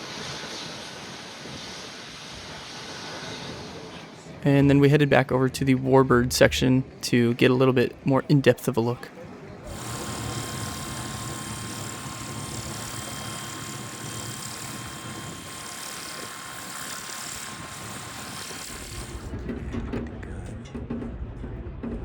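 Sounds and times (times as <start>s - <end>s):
engine running with whine: 9.7s - 19.3s.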